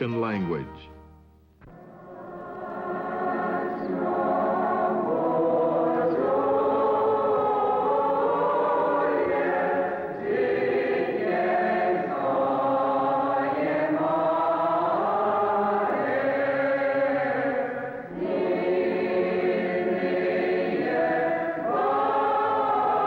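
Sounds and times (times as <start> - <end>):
choir singing a hymn: 1.7 - 23.0.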